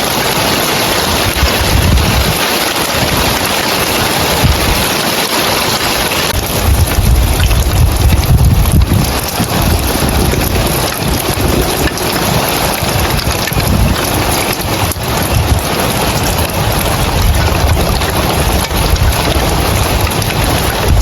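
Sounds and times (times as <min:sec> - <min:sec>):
heavy rain on roof tiles: 0:00.0 - 0:21.0
low rumble: 0:06.4 - 0:11.5.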